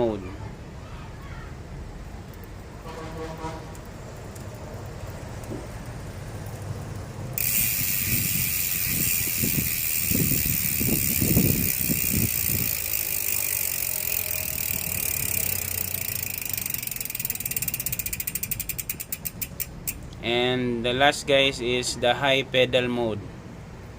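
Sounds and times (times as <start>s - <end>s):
bicycle hub ratchet buzzing: 7.3s - 20.2s.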